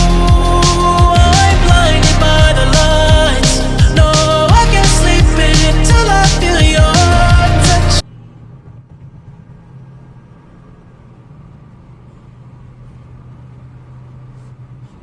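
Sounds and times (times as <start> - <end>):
pop song playing loudly: 0.0 - 8.0
faint road noise: 8.0 - 15.0.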